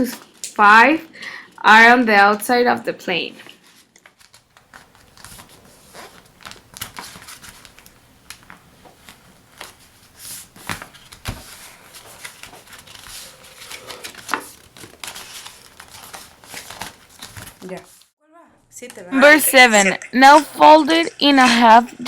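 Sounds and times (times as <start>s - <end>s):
paper rustling and crinkling: 3.6s - 18.1s
paper crease clicks: 10.6s - 17.8s.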